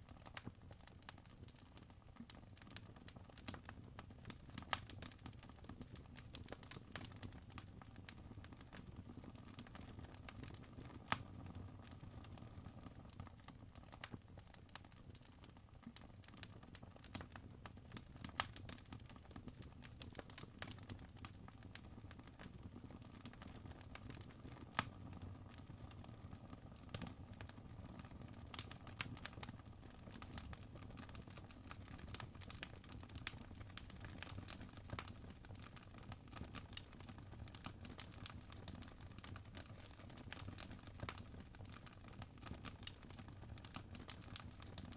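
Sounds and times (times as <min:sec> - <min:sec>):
fire crackling: 0:13.7 - 0:44.9.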